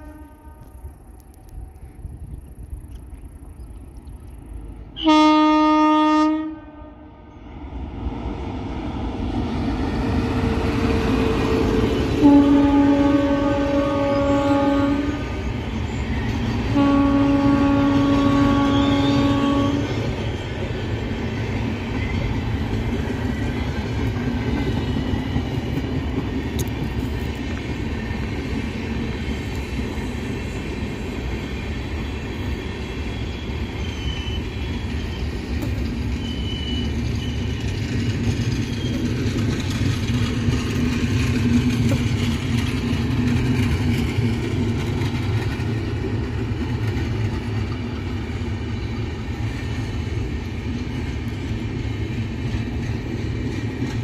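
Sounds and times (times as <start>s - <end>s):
locomotive horn blast: 0.0s - 0.8s, 5.0s - 7.2s, 12.2s - 15.5s, 16.7s - 20.0s
train wheels rumbling on rails: 0.0s - 54.0s.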